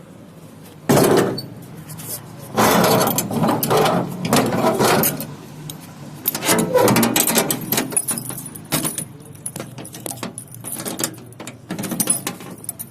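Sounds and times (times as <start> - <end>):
metallic jingling and clicking: 5.0 - 12.9.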